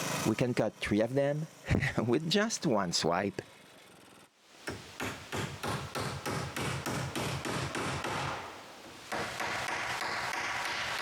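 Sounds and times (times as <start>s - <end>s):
steady hiss: 0.0s - 11.0s
hammer driving nails into wood: 4.7s - 8.5s, 9.1s - 11.0s.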